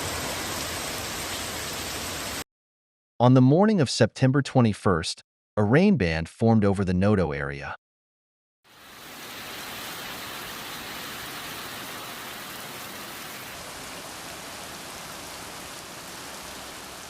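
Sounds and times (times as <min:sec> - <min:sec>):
heavy rain falling: 0:00.0 - 0:02.4, 0:08.7 - 0:17.0.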